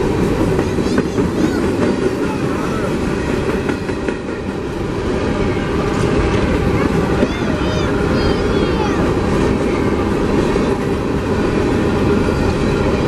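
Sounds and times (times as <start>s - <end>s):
clickety-clack over rail joints: 0.0s - 4.8s, 5.8s - 13.0s
train wheels rumbling on rail: 0.0s - 13.0s.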